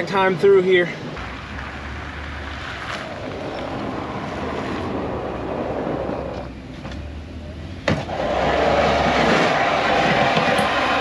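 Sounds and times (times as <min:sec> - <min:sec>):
plow truck running: 0:01.2 - 0:11.0
blizzard wind rushing: 0:03.0 - 0:06.5, 0:08.1 - 0:11.0.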